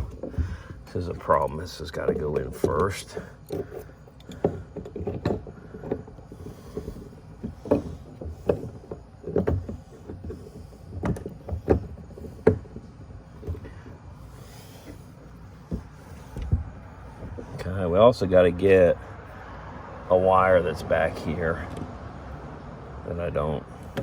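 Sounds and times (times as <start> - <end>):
knocks of hoses and tools: 0.0 - 18.0.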